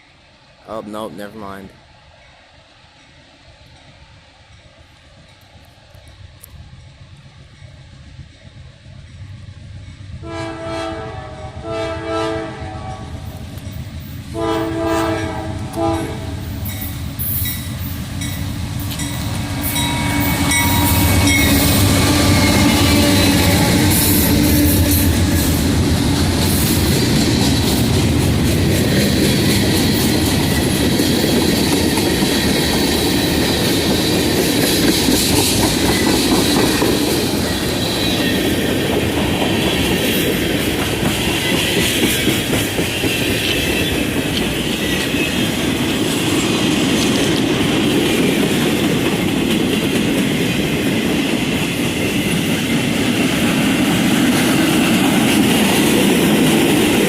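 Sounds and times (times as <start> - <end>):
train engines and wheels rumbling: 0.0 - 57.0
locomotive horn blasts: 10.2 - 13.1, 14.4 - 16.4.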